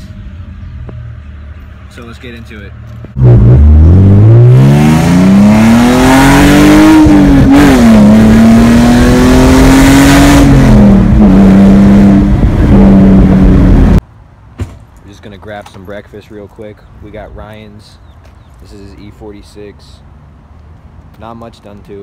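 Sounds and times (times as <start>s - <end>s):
sports car exhaust accelerating: 3.1s - 14.0s.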